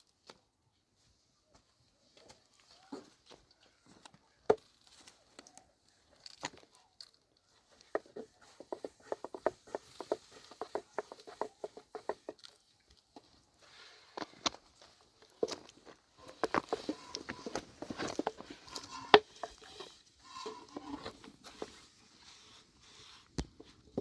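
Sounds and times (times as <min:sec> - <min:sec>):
light taps and knocks: 0:07.8 - 0:12.5.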